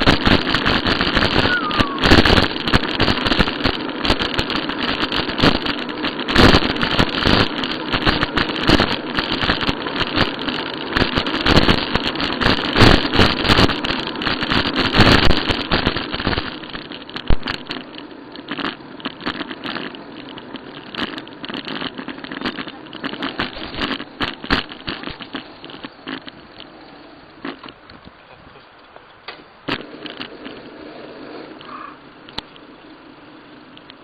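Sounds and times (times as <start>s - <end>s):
bike rattling and knocking: 0.0s - 34.0s
wind buffeting microphone: 19.1s - 28.7s.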